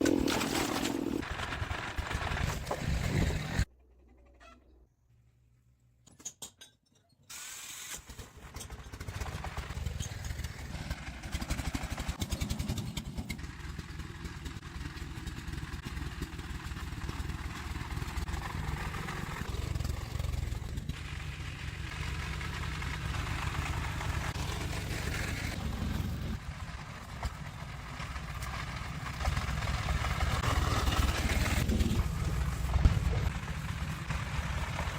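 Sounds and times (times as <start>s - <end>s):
truck engine running: 9.1s - 34.9s.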